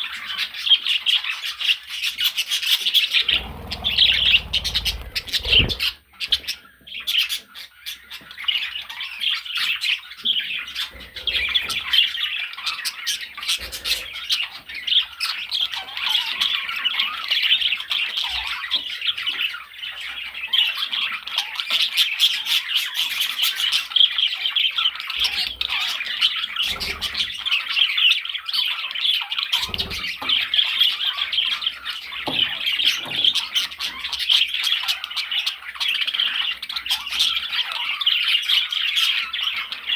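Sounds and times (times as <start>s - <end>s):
budgerigar chattering: 3.0s - 6.6s, 10.6s - 14.6s.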